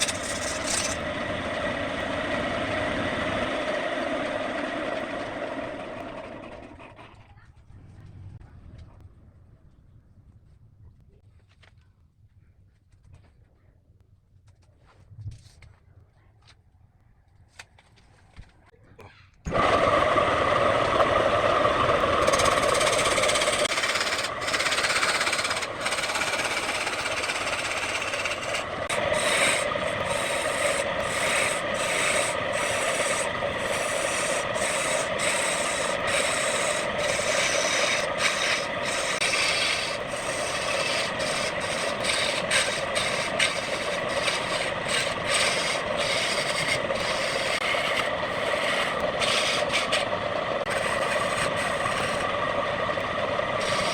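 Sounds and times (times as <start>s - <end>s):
tool rasping on spinning wood: 0.0s - 7.0s, 19.5s - 53.9s
wood lathe humming: 0.0s - 7.0s, 19.5s - 53.9s.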